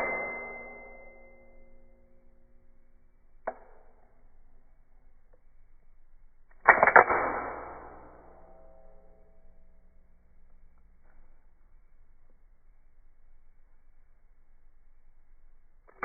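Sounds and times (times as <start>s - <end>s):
metallic blade snap: 6.5s - 9.3s.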